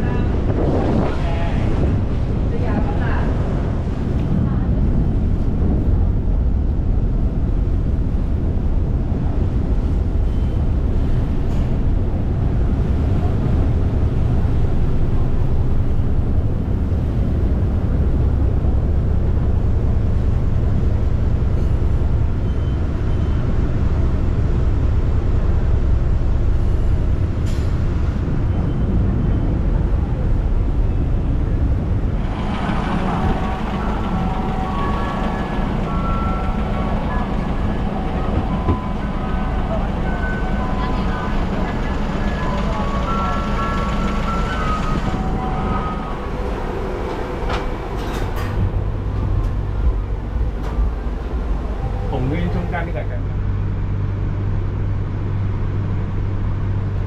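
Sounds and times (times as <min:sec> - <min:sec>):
low traffic rumble: 0:00.0 - 0:57.0
voices: 0:29.0 - 0:53.2.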